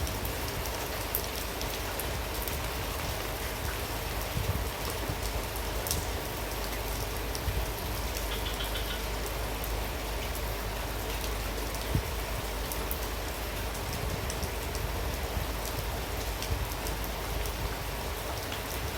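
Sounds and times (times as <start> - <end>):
strong wind rumble: 0.0 - 6.4, 13.4 - 18.9
heavy rain pouring: 0.0 - 18.9
raindrops striking a surface: 0.0 - 18.9.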